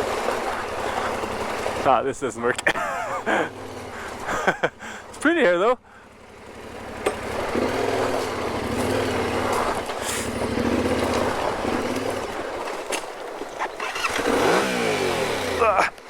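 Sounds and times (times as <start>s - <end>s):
steady rushing noise: 0.0s - 4.2s
motorcycle engine at low revs: 0.0s - 16.0s.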